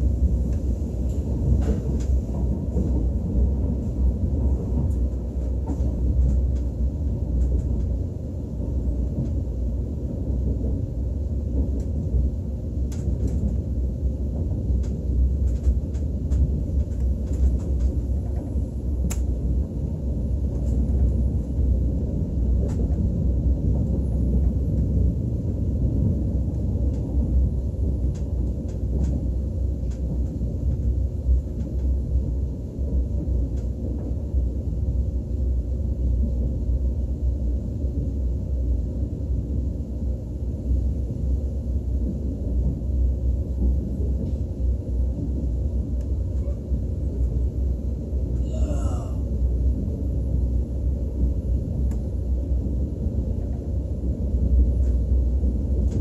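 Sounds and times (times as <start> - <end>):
train rumbling on track: 0.0 - 56.0
faint clicks: 19.1 - 19.3.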